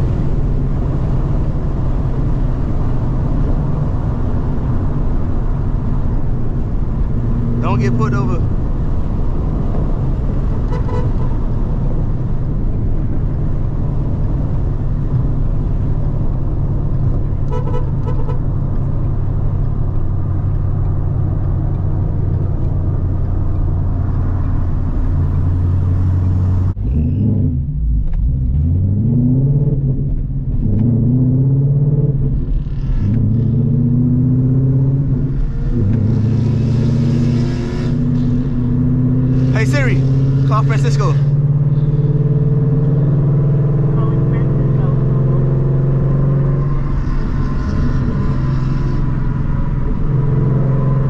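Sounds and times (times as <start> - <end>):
car engine droning and revving: 0.0 - 51.0
car horn toots: 10.6 - 11.4, 17.4 - 18.5.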